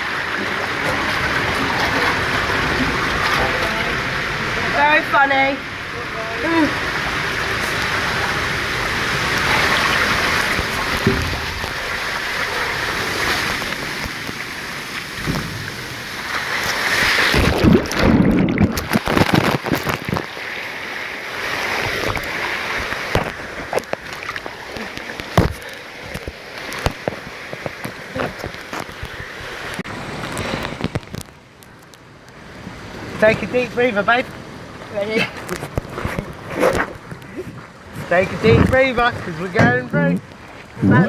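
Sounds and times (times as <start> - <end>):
running and splashing water: 0.0 - 41.0
knocks and thumps: 10.4 - 12.4, 15.2 - 15.9.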